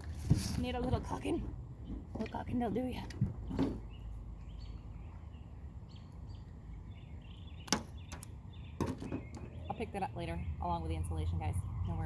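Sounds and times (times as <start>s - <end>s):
steady low rumble: 9.6s - 12.0s.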